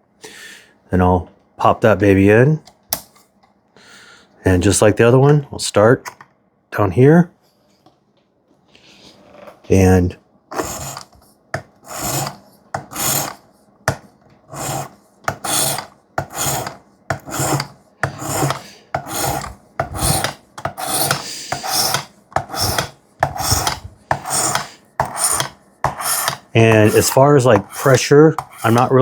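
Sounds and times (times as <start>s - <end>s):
sharpening stone rasping on knife edge: 11.9s - 13.4s, 14.5s - 29.0s.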